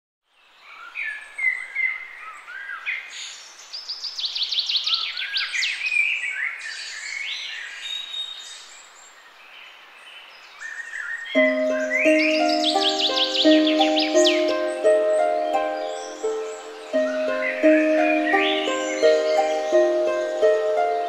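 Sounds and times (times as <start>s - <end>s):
small birds singing and calling: 0.3s - 21.0s
sharp descending bird notes: 11.4s - 21.0s.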